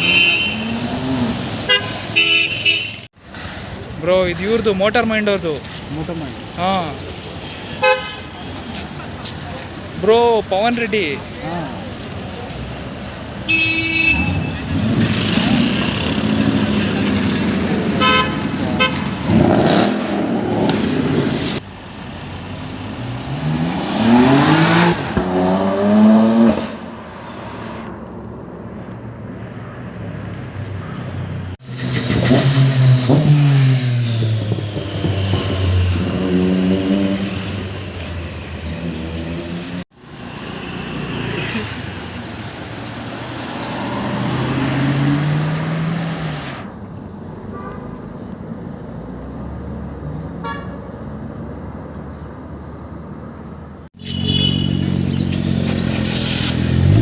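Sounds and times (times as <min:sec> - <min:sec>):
car horn: 0:00.0 - 0:01.0, 0:01.6 - 0:03.1, 0:07.6 - 0:08.4, 0:13.4 - 0:14.7, 0:18.0 - 0:19.1, 0:50.4 - 0:50.8, 0:54.0 - 0:55.0
car engines accelerating past: 0:43.3 - 0:46.6.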